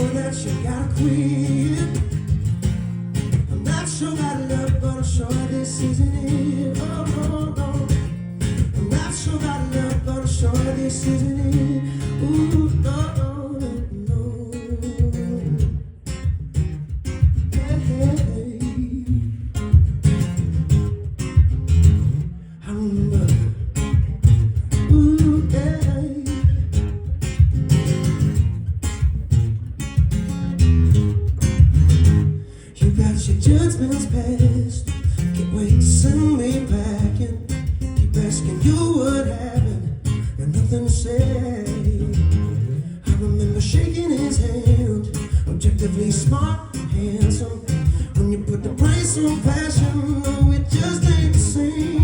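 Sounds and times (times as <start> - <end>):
wordless vocal line: 0.0 - 2.4, 3.5 - 15.7, 32.4 - 52.0
bass guitar: 0.0 - 52.0
strummed guitar: 0.0 - 52.0
person singing: 3.6 - 8.0, 43.0 - 52.0.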